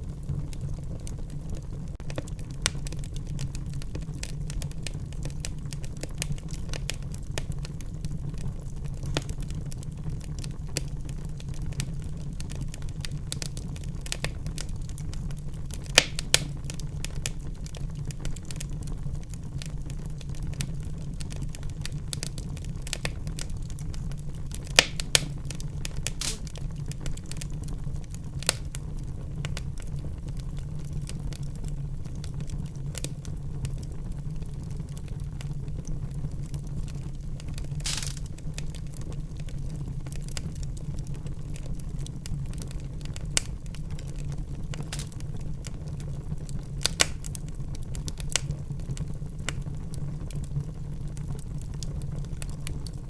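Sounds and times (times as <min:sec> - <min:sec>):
low rumble of flames: 0:00.0 - 0:53.0
wood fire crackling and popping: 0:00.0 - 0:53.0.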